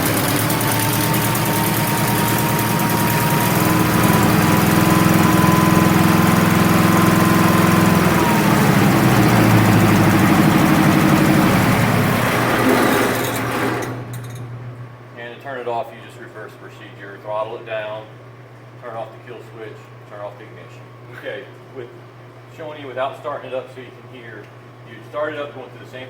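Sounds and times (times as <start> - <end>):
sawmill engine running: 0.0 - 14.5.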